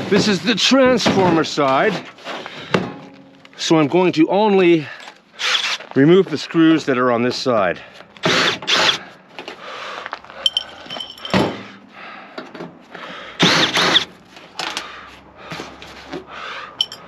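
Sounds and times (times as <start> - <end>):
power screwdriver whirring: 5.4 - 5.9, 8.2 - 9.0, 13.4 - 14.1
metallic clinks and knocks: 10.4 - 11.6, 16.8 - 17.0.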